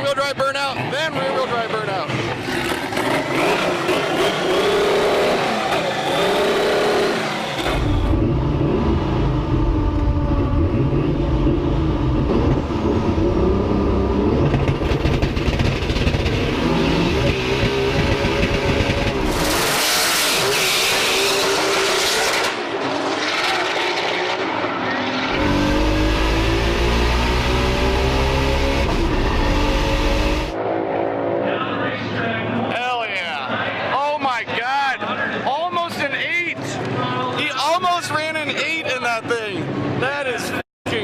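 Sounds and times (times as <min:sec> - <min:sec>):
car engine revving and accelerating: 0:02.1 - 0:31.9.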